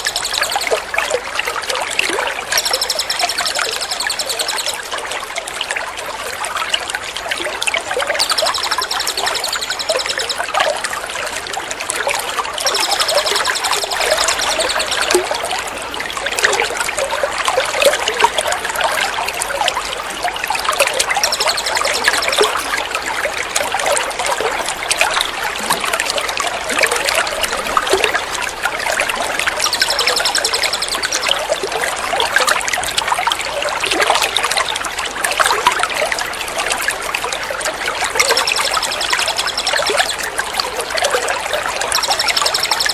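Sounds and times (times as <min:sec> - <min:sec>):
high rapid bird trill: 0:00.0 - 0:00.8, 0:02.5 - 0:04.8, 0:08.2 - 0:10.6, 0:12.6 - 0:15.4, 0:21.0 - 0:22.6, 0:29.6 - 0:31.5, 0:38.2 - 0:40.2, 0:41.8 - 0:42.9
trickling running water: 0:00.0 - 0:42.9.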